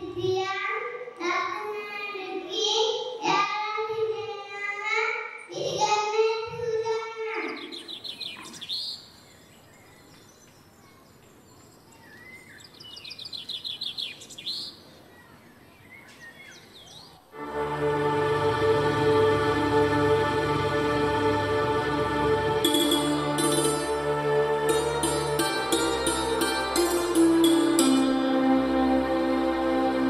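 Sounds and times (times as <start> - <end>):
children's voices over microphones: 0.0 - 7.8.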